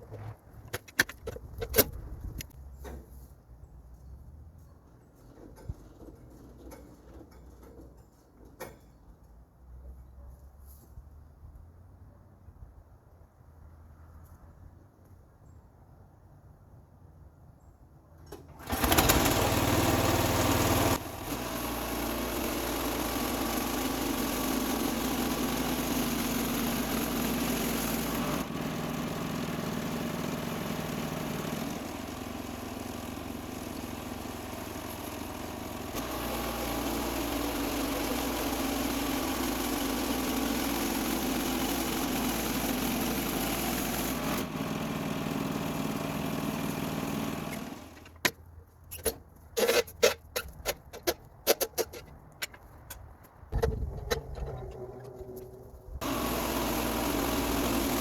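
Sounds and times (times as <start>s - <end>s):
small gasoline engine running: 18.4s - 48.2s, 53.6s - 58.0s.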